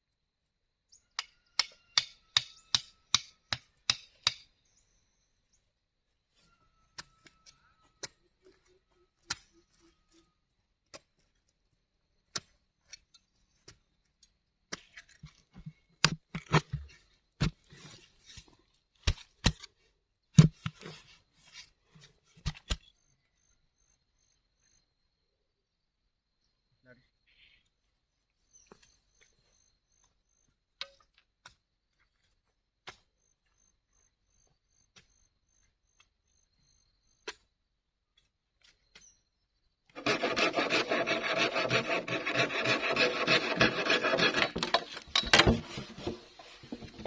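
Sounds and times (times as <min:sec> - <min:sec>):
hand tool striking bamboo: 0:01.2 - 0:04.4.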